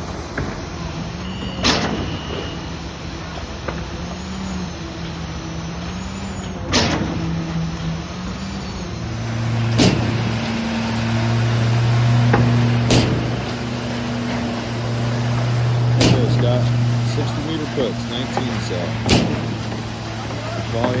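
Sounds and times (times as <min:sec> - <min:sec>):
diesel engine running: 0:00.0 - 0:21.0
pump valve banging: 0:09.6 - 0:21.0.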